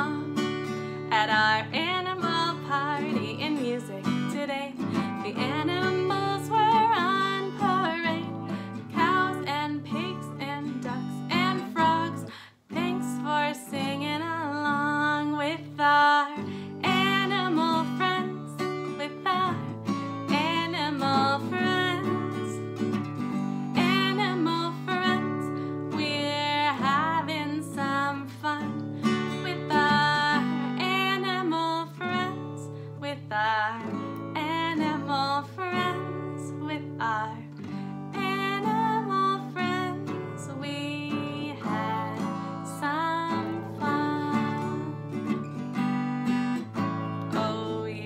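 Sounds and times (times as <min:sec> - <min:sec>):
woman singing: 0:00.0 - 0:48.0
acoustic guitar strumming: 0:37.3 - 0:47.9.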